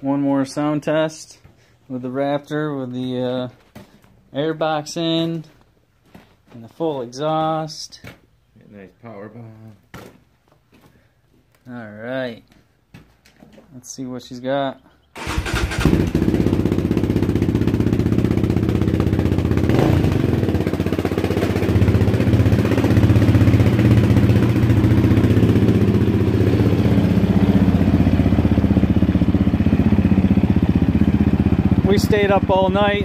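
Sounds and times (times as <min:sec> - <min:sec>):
atv engine running: 0:15.2 - 0:33.0.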